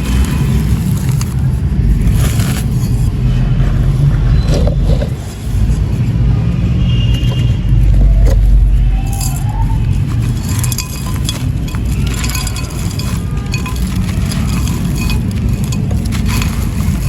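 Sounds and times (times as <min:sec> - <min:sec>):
heavy low rumble: 0:00.0 - 0:17.0
sand pots crumbling and crunching: 0:00.0 - 0:17.0.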